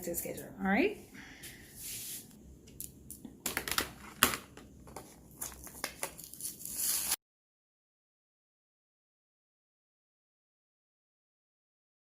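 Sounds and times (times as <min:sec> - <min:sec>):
material crinkling and tearing: 0:05.3 - 0:07.2.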